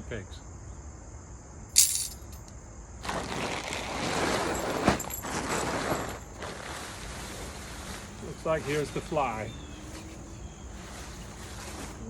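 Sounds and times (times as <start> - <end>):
metal tent pegs clinking: 1.8 - 2.5
tent fabric rustling: 3.0 - 12.0.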